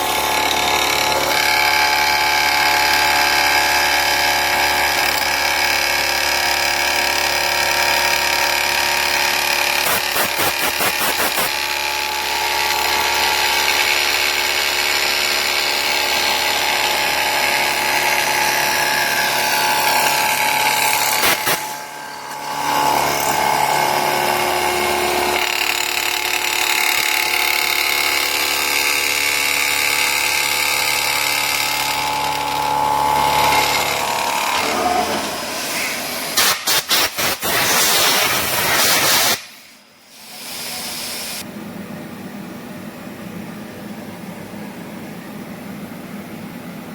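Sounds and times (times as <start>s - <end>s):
milling machine whine: 0.0s - 36.4s.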